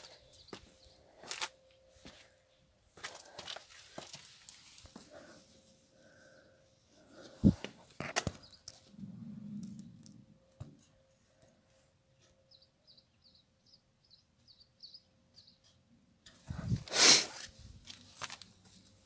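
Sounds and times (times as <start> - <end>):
small bird chirping: 12.2 - 15.8.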